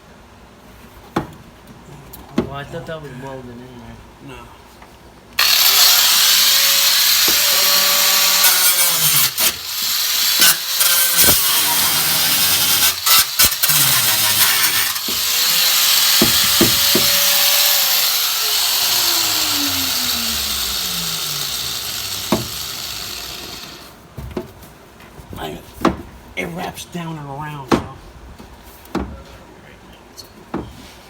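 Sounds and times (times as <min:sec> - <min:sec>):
power tool running on metal: 0:05.4 - 0:24.0.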